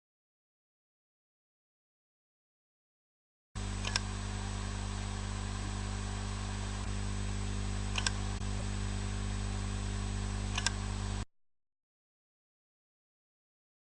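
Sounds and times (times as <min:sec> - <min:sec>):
hard disk drive humming: 0:03.6 - 0:11.3
disk head clicking: 0:03.8 - 0:04.1, 0:07.9 - 0:08.2, 0:10.5 - 0:10.8.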